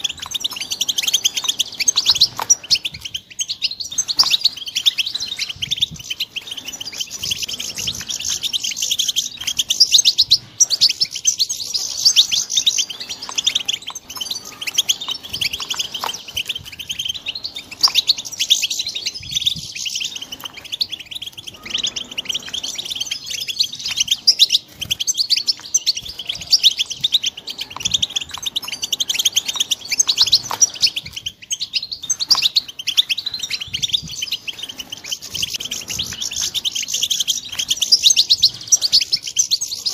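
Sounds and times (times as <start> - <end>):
bird chicks chirping: 0.0 - 39.9.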